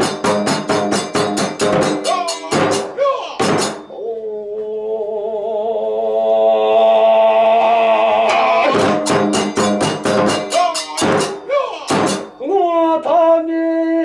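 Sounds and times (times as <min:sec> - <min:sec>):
drum and cymbal strikes: 0:00.0 - 0:04.0, 0:08.3 - 0:12.8.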